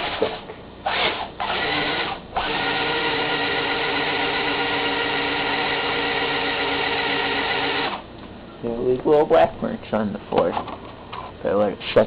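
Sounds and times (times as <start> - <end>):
toy truck motor whining: 0.9 - 8.0.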